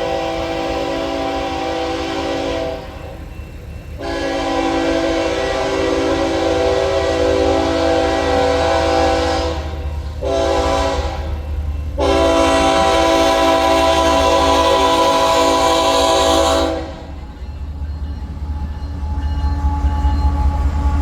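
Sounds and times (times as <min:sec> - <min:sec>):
locomotive air horn blasts: 0:00.0 - 0:03.1, 0:04.0 - 0:11.4, 0:12.0 - 0:17.2
locomotive engine rumble: 0:00.0 - 0:21.0.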